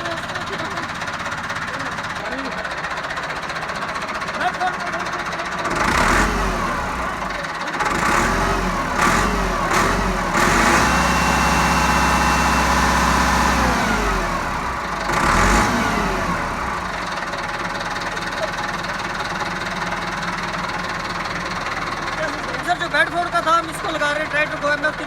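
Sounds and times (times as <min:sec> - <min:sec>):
engine revving and idling: 0:00.0 - 0:24.6.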